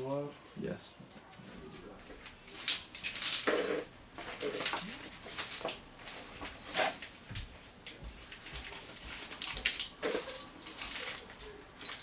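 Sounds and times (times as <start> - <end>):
metal gear clinking and rattling: 2.5 - 3.7, 8.3 - 12.0.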